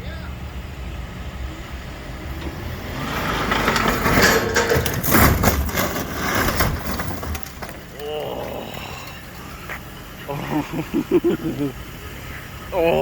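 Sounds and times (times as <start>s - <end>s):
machine engine rumbling: 0.6s - 12.6s
crunching metal impacts: 2.0s - 9.4s
scrap car crashing down: 2.2s - 9.2s.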